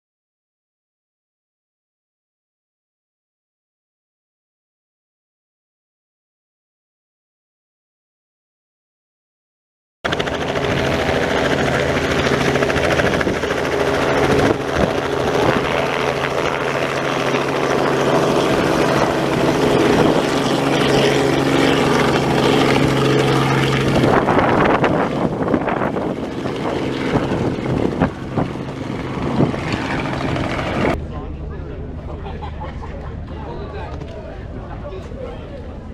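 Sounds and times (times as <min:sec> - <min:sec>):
propeller aircraft engine: 0:10.1 - 0:35.9.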